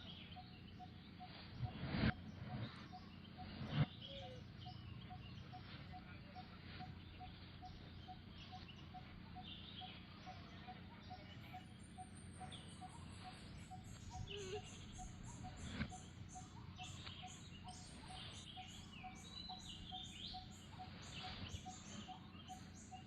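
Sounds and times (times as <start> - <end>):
bird chirps: 0.0 - 23.0
high fast pulsing sound: 1.2 - 9.2.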